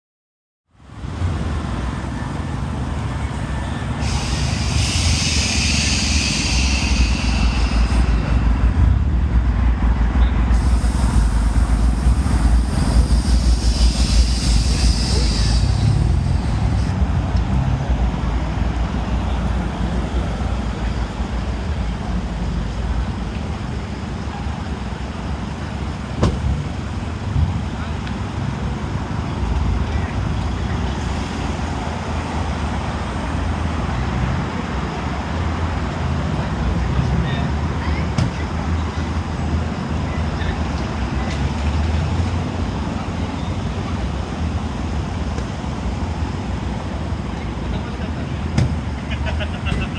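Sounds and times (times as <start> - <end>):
engines rumbling: 0.8 - 49.9
air suspension hissing: 3.2 - 9.0, 10.5 - 17.0.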